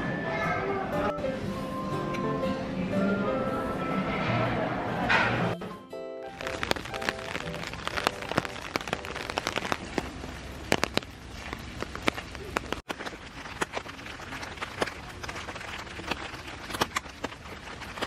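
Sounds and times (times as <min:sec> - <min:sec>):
sharp taps of raindrops: 0:06.3 - 0:18.0
steady rain falling: 0:06.3 - 0:18.0.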